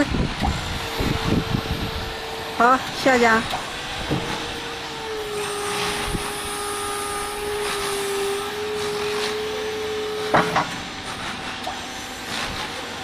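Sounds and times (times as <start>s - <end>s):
electric motor whining: 0.0s - 13.0s
clamp clunk: 10.3s - 10.9s.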